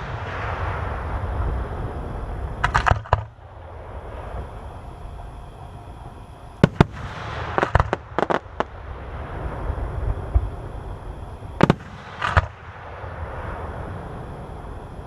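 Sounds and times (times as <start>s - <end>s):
crackling pops: 0.0s - 3.6s, 6.0s - 8.8s, 11.4s - 12.9s
fireworks bangs: 0.0s - 5.3s, 6.1s - 14.4s
fireworks rumble and hiss: 0.0s - 15.0s.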